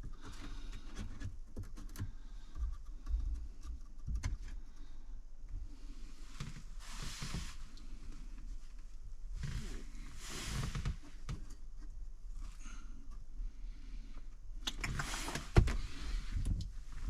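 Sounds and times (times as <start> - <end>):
scraping rustle: 6.0 - 11.6, 14.8 - 17.0.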